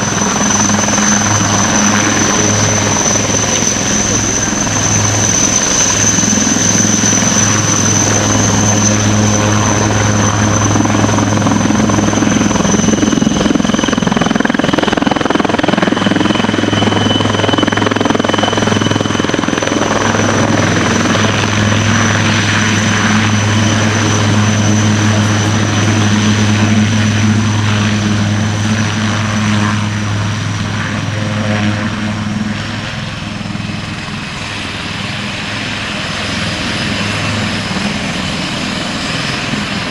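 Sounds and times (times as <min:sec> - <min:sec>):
helicopter rotor drone: 0:00.0 - 0:39.9
high turbine whine: 0:00.0 - 0:39.9.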